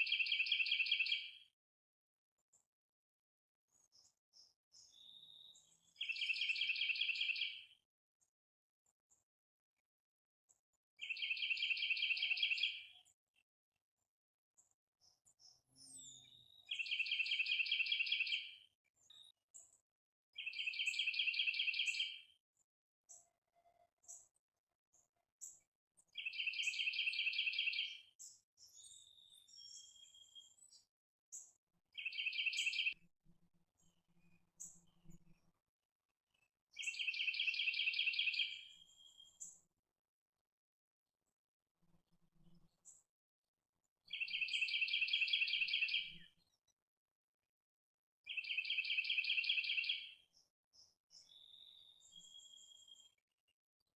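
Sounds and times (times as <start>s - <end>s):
songbird trills: 20.4s - 22.2s, 32.0s - 33.0s, 36.8s - 39.6s, 44.1s - 46.3s.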